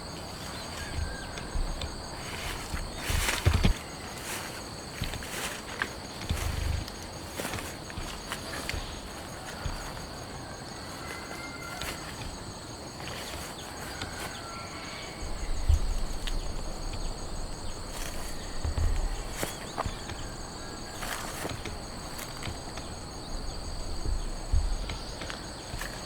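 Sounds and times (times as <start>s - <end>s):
insects trilling: 0.0s - 26.0s
dull low thumps: 0.5s - 3.8s, 15.2s - 26.0s.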